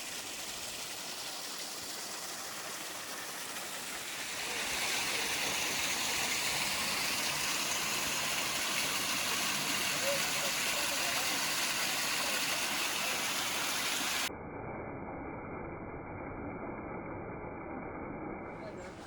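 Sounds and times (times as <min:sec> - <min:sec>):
stream water rushing: 0:00.0 - 0:14.3.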